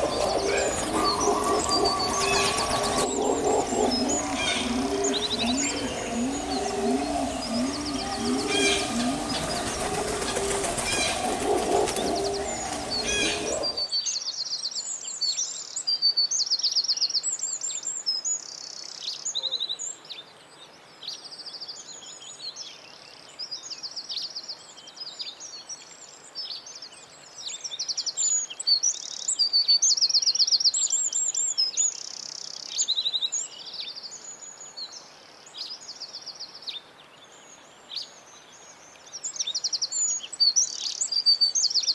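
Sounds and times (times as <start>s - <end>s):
loud rushing noise: 0.0s - 13.9s
low wavering calls: 0.0s - 13.9s
songbirds chirping and singing: 0.0s - 14.0s.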